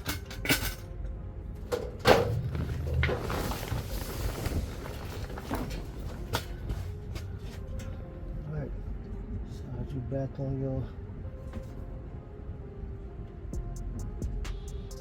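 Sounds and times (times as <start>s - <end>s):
rustling scrape: 2.3s - 7.7s.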